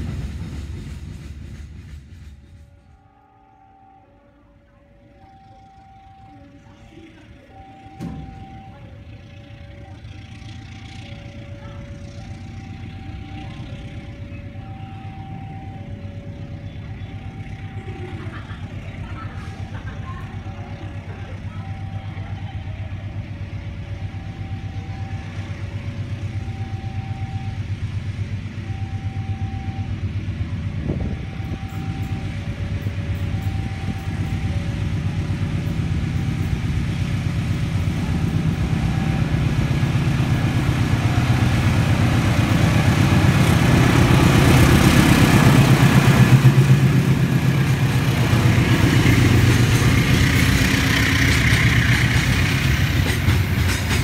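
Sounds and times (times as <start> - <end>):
diesel locomotive engine rumble: 0.0 - 54.0
two-note electronic warning tone: 3.4 - 18.8, 28.6 - 36.4, 37.9 - 46.5
freight wagons rolling on rails: 5.6 - 27.0, 29.9 - 54.0.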